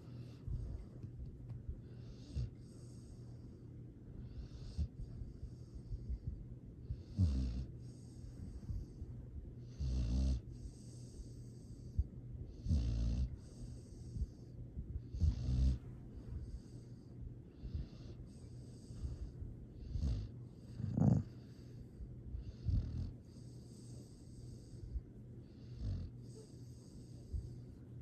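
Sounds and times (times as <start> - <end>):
dog snoring: 1.8 - 3.5, 4.2 - 27.6.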